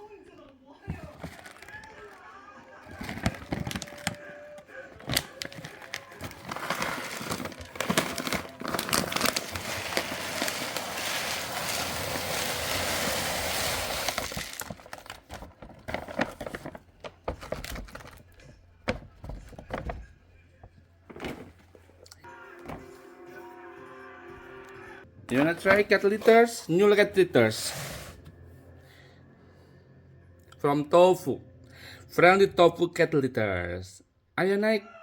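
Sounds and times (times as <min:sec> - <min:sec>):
plastic bag crinkling: 0:00.9 - 0:02.2, 0:02.8 - 0:18.4
cat litter granules pouring: 0:05.0 - 0:16.8.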